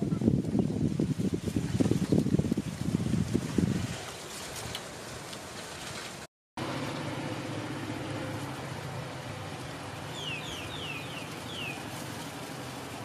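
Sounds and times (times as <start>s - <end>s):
steady low outdoor noise: 6.6s - 13.0s
bird whistling: 10.1s - 11.8s.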